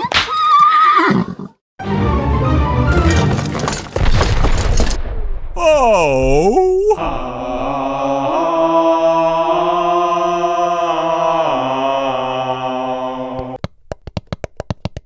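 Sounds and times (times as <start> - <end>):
long chanted vocal note: 7.0 - 13.4.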